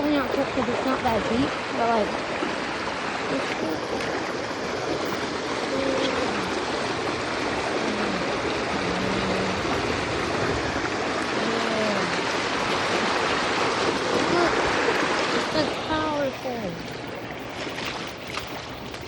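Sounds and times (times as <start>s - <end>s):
floodwater stream rushing: 0.0s - 19.0s.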